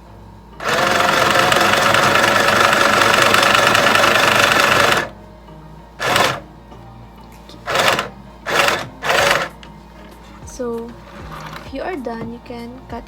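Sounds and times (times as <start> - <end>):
sewing machine stitching: 0.6 - 5.2, 6.0 - 6.4, 7.6 - 11.7.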